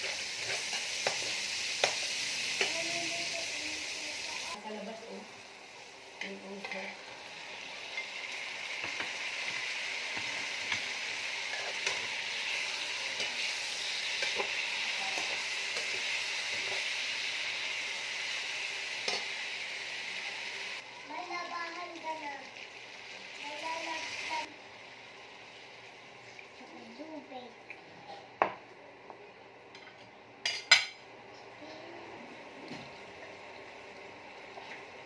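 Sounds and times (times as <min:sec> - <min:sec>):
chicken sizzling in oil: 0:00.0 - 0:27.4.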